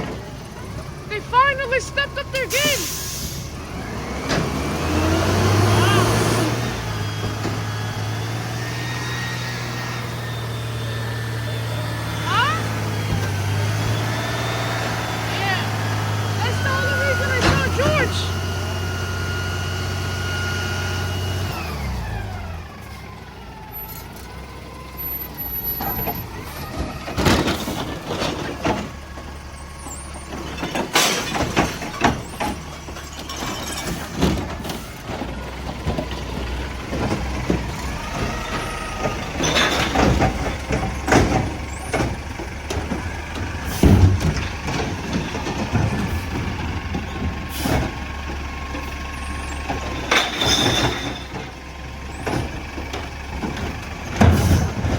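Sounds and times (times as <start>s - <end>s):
trash banging and crunching: 0.0s - 3.0s, 3.6s - 20.1s, 25.5s - 54.9s
diesel engine running: 0.0s - 54.9s
air brake hiss: 2.9s - 3.5s.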